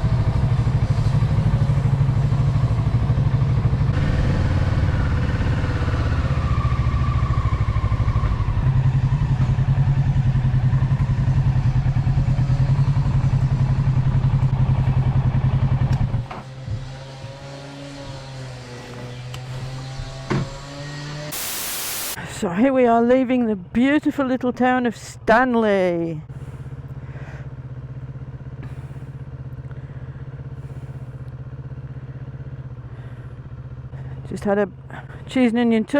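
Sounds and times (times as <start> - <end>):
motorcycle engine idling: 0.0 - 16.8, 26.2 - 35.9.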